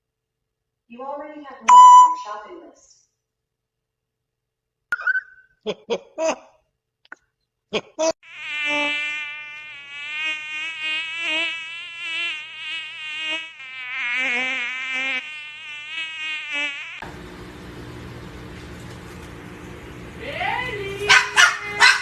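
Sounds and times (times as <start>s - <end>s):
background hiss and hum: 16.4s - 22.0s.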